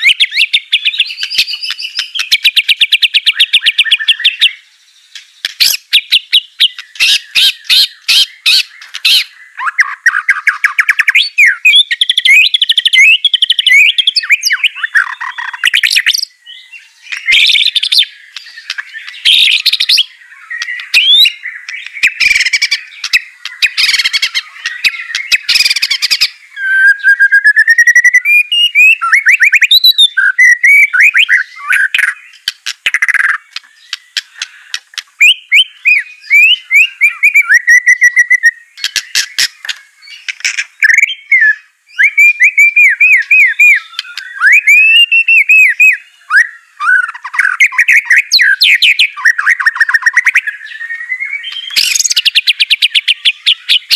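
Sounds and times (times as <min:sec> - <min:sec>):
songbird chattering and whistling: 0:00.0 - 0:53.9.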